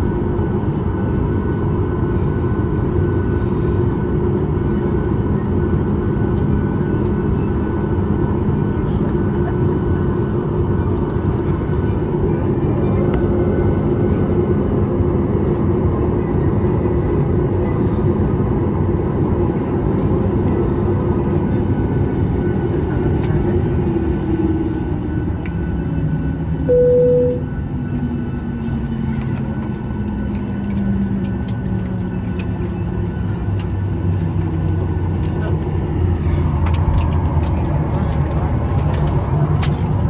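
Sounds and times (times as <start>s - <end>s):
aircraft cabin engine rumble: 0.0s - 40.0s
electronic chime tone: 26.7s - 27.6s.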